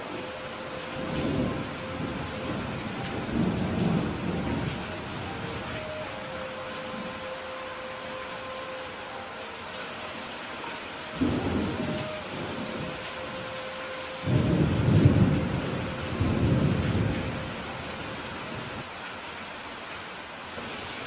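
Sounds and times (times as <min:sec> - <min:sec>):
steady rain falling: 0:00.0 - 0:21.0
thunder rolling: 0:00.8 - 0:05.7, 0:14.2 - 0:17.6.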